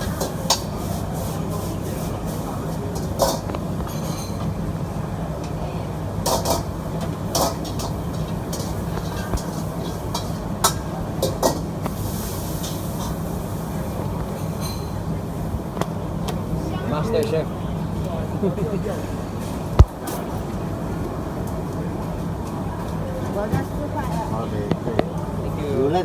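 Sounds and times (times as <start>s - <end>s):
metal utensil clanking on wok: 0.0s - 4.6s, 6.2s - 15.1s
wok burner roaring: 0.0s - 26.0s.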